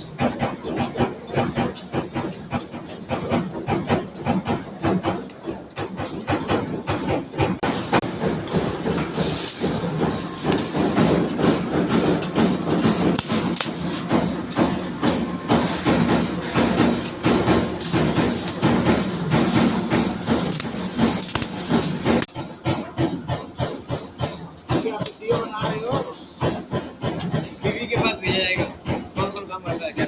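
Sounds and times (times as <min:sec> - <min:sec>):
punch press hitting metal: 0:07.6 - 0:22.3
steady machine din: 0:07.6 - 0:22.3.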